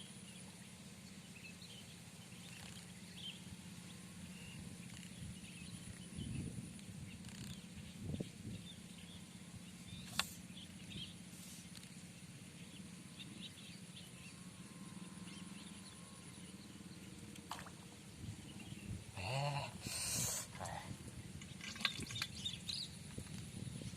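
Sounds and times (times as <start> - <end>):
faint bird chirps: 0.0 - 23.1
steady low hum: 0.0 - 23.9.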